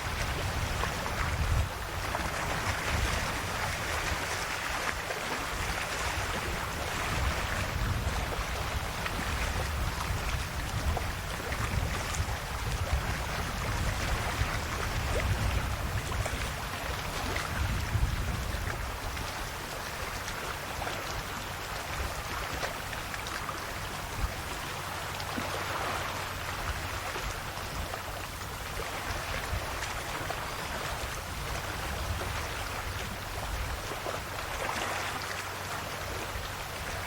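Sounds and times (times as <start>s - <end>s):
sea waves washing on shore: 0.0s - 37.0s.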